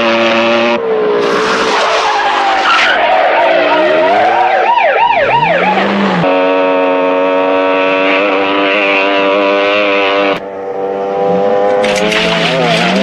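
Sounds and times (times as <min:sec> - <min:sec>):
motorcycle engine at high revs: 0:00.0 - 0:01.0, 0:05.1 - 0:13.0
police siren wailing: 0:00.6 - 0:09.1.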